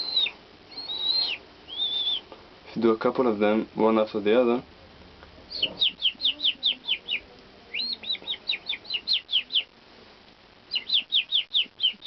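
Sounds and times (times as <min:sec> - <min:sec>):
person whistling bird-like chirps: 0:00.0 - 0:02.2.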